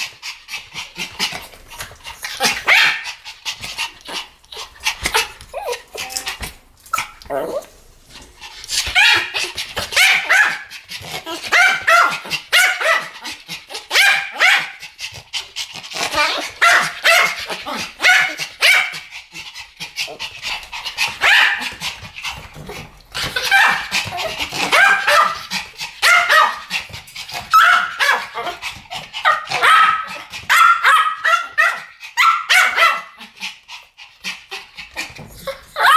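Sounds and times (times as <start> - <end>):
small dogs yapping: 1.0 - 14.8, 16.0 - 19.1, 19.9 - 33.4, 34.6 - 35.9.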